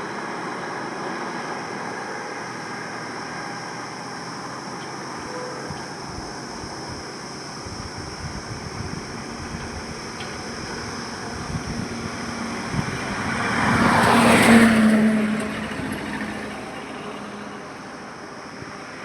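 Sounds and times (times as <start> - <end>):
highway traffic noise: 0.0 - 19.0
vehicle passing by: 10.7 - 18.0.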